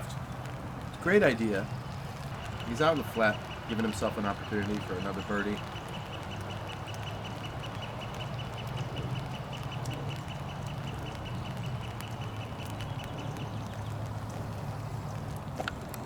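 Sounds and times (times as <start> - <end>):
low steady rumble: 0.0 - 6.3.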